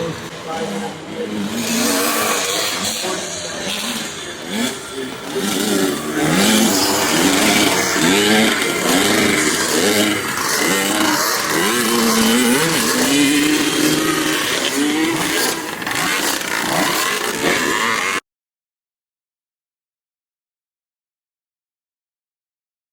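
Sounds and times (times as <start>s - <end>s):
motocross bikes revving: 0.0s - 18.2s.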